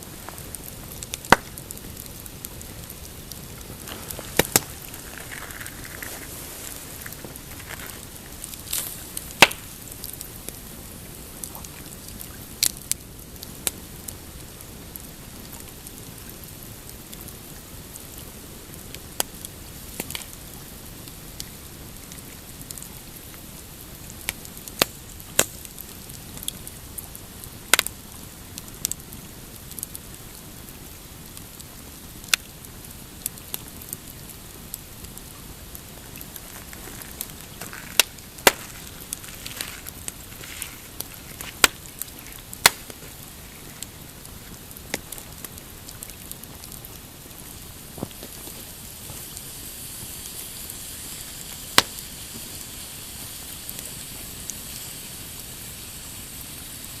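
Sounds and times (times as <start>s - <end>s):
waves lapping on rocky shore: 0.0s - 10.9s, 35.5s - 46.2s
campfire crackling and popping: 0.0s - 57.0s.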